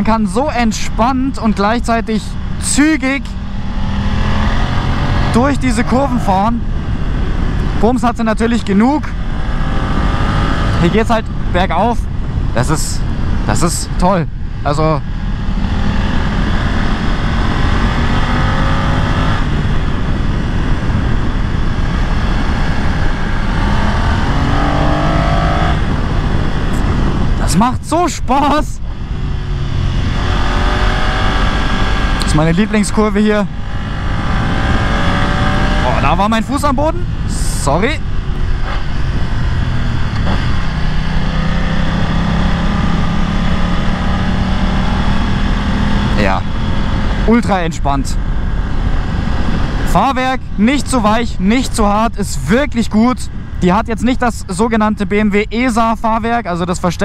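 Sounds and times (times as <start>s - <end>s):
wind rush: 3.2s - 32.8s, 33.4s - 51.7s
motorcycle engine revving uphill: 3.3s - 7.8s, 15.0s - 27.4s, 29.2s - 36.5s, 37.3s - 47.4s.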